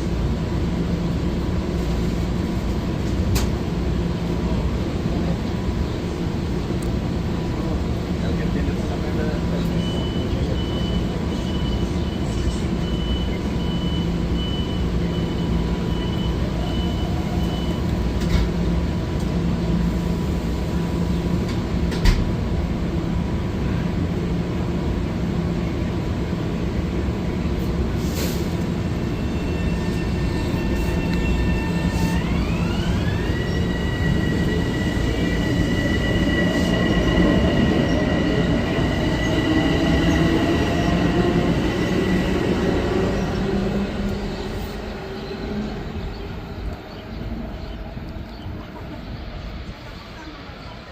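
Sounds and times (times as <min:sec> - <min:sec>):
electric train humming: 0:00.0 - 0:50.9
train whine rising in pitch: 0:28.6 - 0:47.7.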